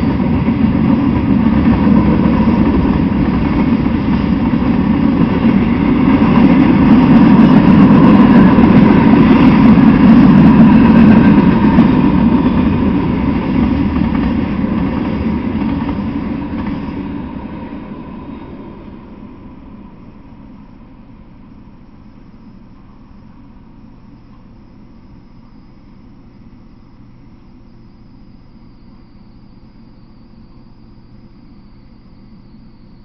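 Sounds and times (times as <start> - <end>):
freight train wheels on rails: 0.0 - 24.7.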